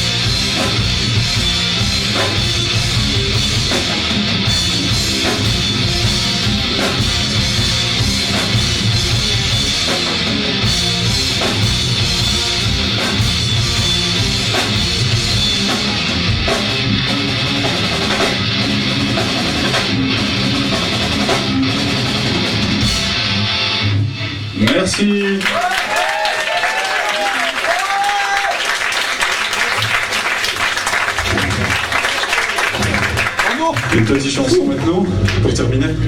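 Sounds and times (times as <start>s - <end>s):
electric guitar: 0.0s - 24.6s
bass guitar: 0.0s - 24.9s, 32.7s - 36.0s
drum kit: 0.0s - 25.1s, 31.1s - 36.0s.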